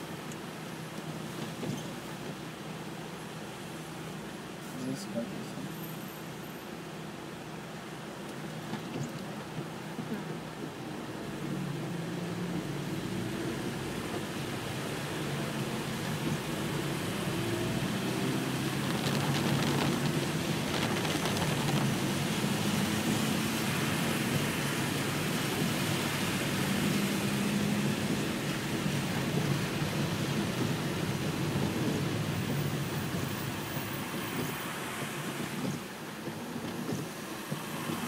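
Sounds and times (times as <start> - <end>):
heavy rain on car roof: 0.0 - 5.7, 6.7 - 38.0
car running hum: 16.2 - 23.3.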